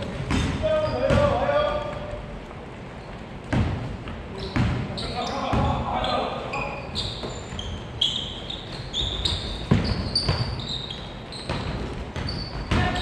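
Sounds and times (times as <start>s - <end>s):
sneakers squeaking: 0.0s - 13.0s
basketball bouncing on hardwood: 9.1s - 10.7s, 11.4s - 13.0s.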